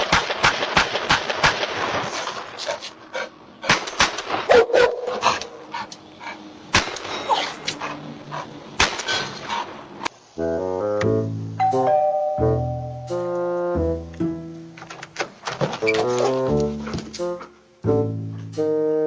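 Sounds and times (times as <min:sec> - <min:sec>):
dog barking: 0:04.5 - 0:06.4.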